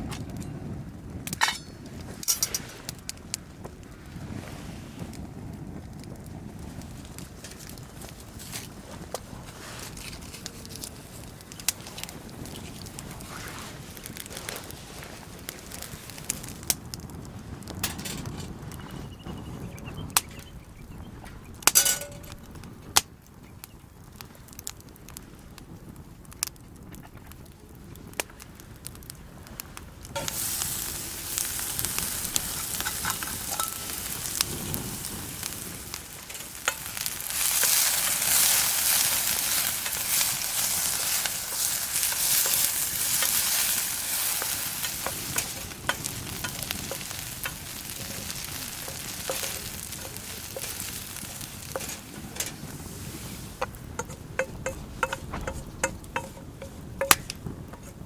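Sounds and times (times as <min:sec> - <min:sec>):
food sizzling in a frying pan: 0:06.7 - 0:16.8, 0:29.4 - 0:58.0
utensil scraping in pan: 0:07.1 - 0:16.6, 0:30.2 - 0:58.0.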